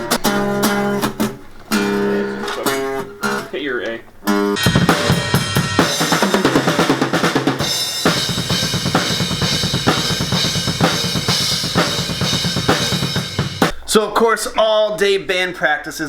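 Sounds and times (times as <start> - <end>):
rock band playing: 4.3 - 13.8
drum kit beat: 4.6 - 13.8.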